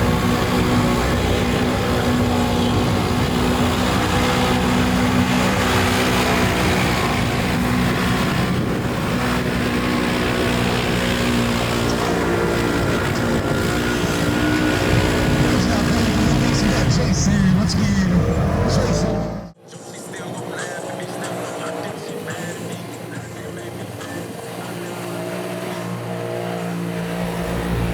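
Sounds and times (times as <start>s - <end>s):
steady rushing wash: 0.0s - 17.7s
utility vehicle engine under load: 0.0s - 27.9s.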